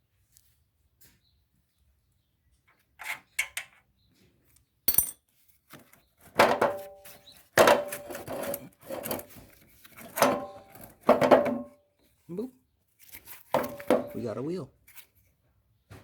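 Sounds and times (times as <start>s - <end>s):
metal parts clanking and rattling: 4.9s - 5.2s.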